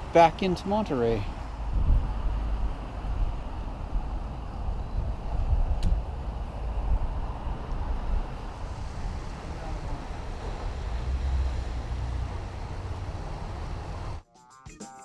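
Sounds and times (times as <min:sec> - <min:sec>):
vehicle low rumble: 0:00.0 - 0:14.2
wind noise on microphone: 0:01.3 - 0:14.2
music: 0:14.2 - 0:15.0.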